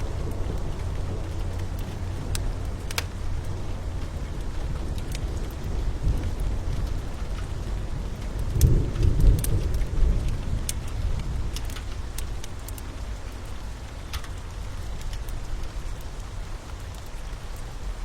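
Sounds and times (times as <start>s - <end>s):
low rumble: 0.0s - 13.7s
fire crackling and popping: 0.0s - 18.0s
steady rain: 0.0s - 18.0s.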